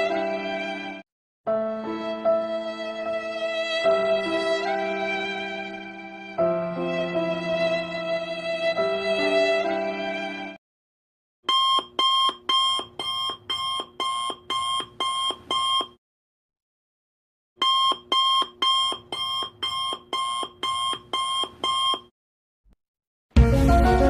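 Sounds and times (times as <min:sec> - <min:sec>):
alarm clock beeping: 0:11.5 - 0:15.9, 0:17.6 - 0:22.0.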